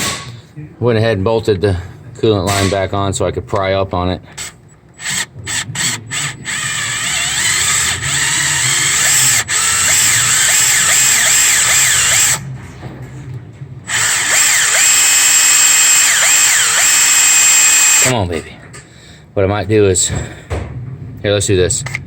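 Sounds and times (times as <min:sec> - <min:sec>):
power drill whining under load: 0:05.0 - 0:12.4, 0:13.9 - 0:18.2.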